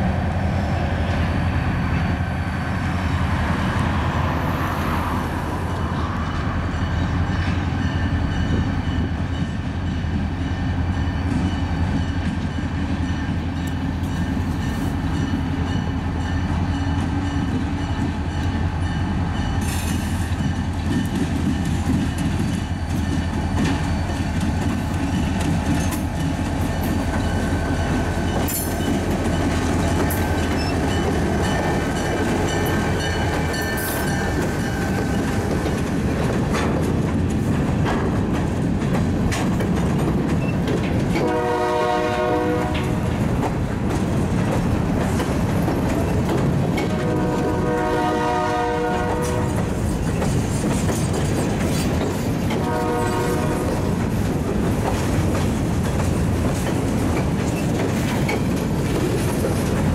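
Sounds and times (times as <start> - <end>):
diesel locomotive running: 0.0 - 59.9
wheel clatter over rail joints: 19.6 - 41.4, 42.6 - 47.6, 49.2 - 59.9.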